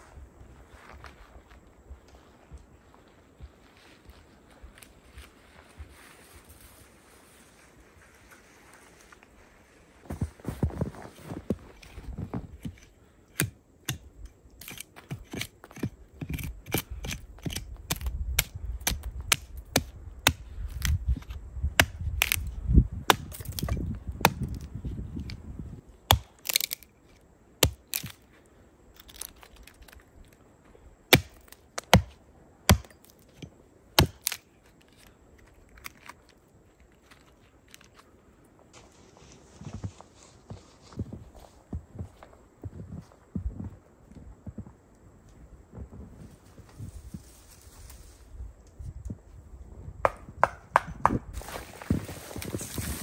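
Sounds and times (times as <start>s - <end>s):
dry wood cracking and snapping: 12.6s - 25.4s, 26.1s - 26.9s, 27.6s - 28.2s, 28.9s - 30.4s, 31.1s - 32.1s, 34.0s - 38.1s.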